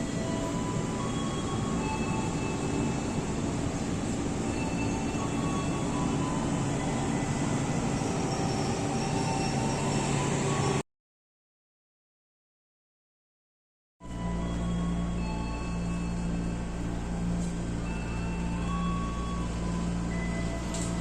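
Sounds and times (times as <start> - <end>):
train wheels rumbling on rails: 0.0 - 10.8.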